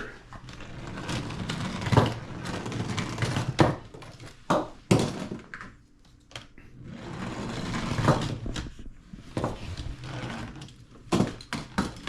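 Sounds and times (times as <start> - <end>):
toy trucks rolling: 0.4 - 4.3.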